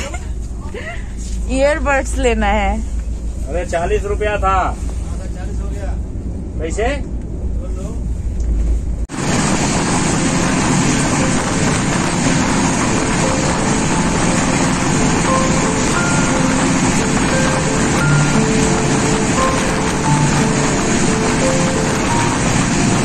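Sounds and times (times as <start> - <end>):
wind rushing past train: 1.1 - 23.0
train wheels on rails: 8.3 - 23.0.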